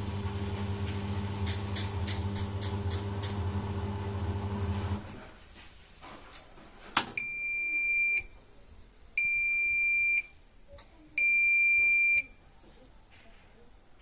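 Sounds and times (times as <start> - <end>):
washing machine buzzer beeps: 7.2 - 8.3, 9.2 - 10.3, 11.2 - 12.3.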